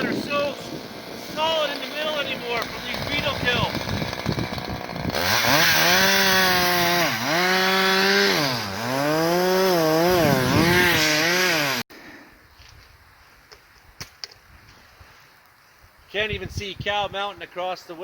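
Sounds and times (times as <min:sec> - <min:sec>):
chainsaw cutting wood: 0:00.0 - 0:11.9.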